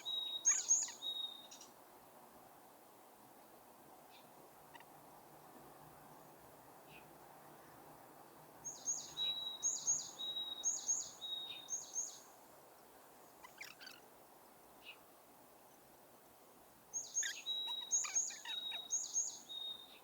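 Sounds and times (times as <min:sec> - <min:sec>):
bird chirps: 0:00.0 - 0:01.7, 0:08.7 - 0:12.3, 0:17.0 - 0:20.0
songbird singing: 0:00.0 - 0:01.8, 0:06.1 - 0:14.1, 0:14.7 - 0:15.8, 0:16.9 - 0:20.0
faint outdoor background noise: 0:00.0 - 0:20.0.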